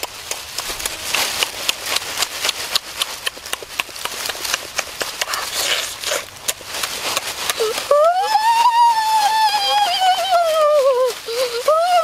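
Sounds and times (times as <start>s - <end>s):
wet smacking and crunching: 0.0s - 7.7s.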